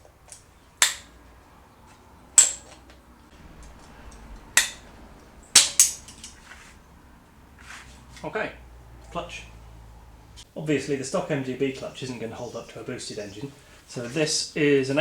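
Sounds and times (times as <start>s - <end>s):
hammer striking metal: 3.4s - 6.7s.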